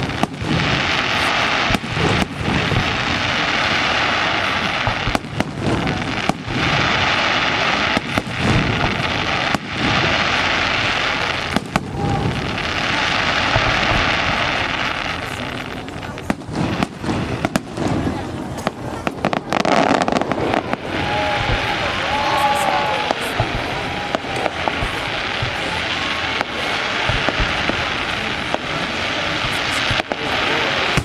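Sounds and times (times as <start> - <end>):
fireworks bangs: 0.0 - 31.0
fireworks crackling: 0.0 - 31.0.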